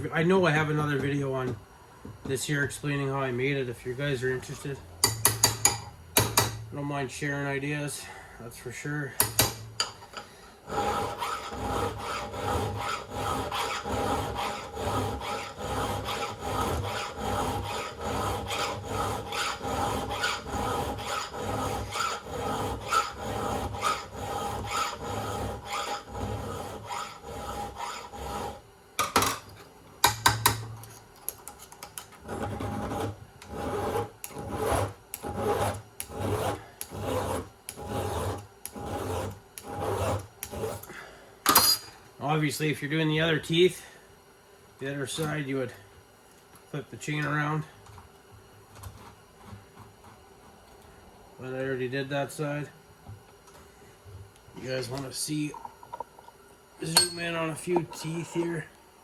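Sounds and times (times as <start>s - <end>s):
file rasping on chainsaw chain: 10.7s - 28.6s, 32.3s - 40.8s.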